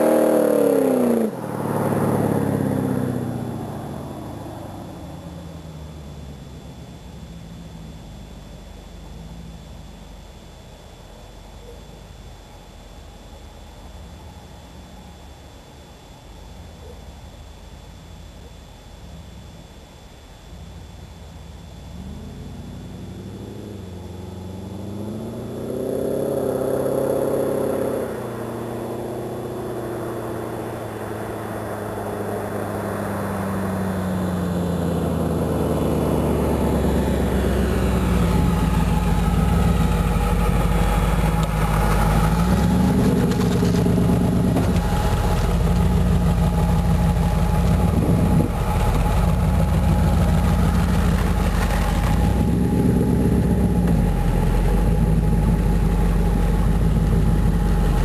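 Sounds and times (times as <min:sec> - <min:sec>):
hot rod engine revving: 0:00.0 - 0:03.5, 0:21.8 - 0:58.0.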